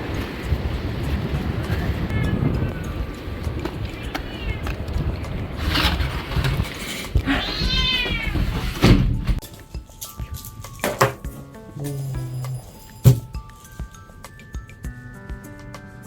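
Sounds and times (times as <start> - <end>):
cat meowing: 1.7 - 4.8, 7.2 - 8.6, 11.8 - 13.3.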